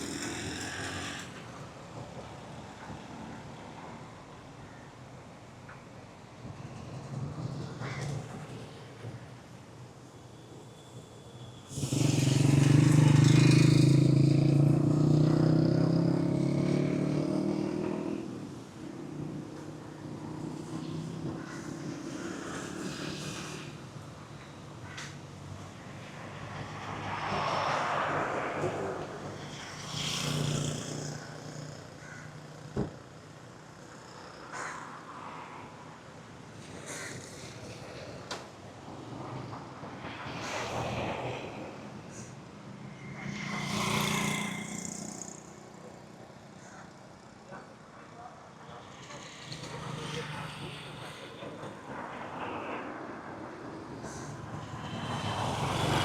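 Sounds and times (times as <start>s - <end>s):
street ambience: 0.0s - 56.0s
vehicle passing: 11.7s - 24.0s, 25.5s - 32.2s, 40.0s - 45.8s, 53.3s - 56.0s.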